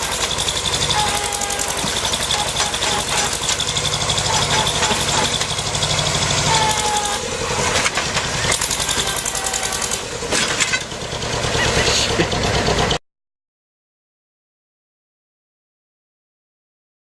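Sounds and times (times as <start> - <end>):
heavy vehicle engine rumbling: 0.0 - 13.0.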